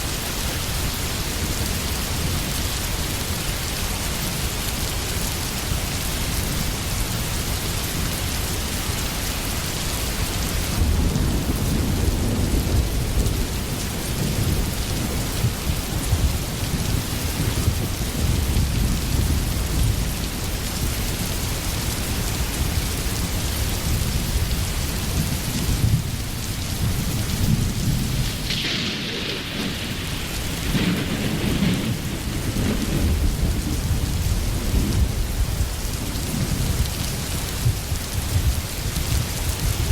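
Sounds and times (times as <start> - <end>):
steady rain: 0.0 - 39.9
rolling thunder rumbles: 10.2 - 39.9.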